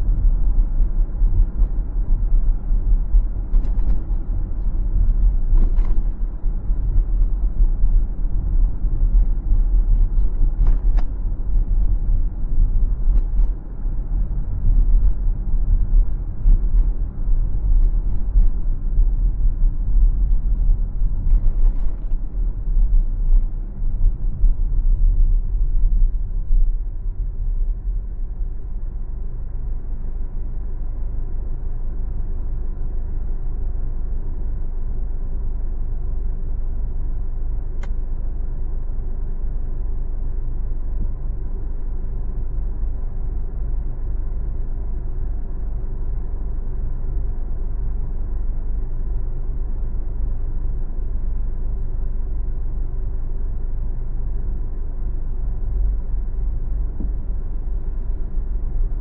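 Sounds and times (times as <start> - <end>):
car road and engine rumble: 0.0 - 59.0
faint click: 37.8 - 38.0.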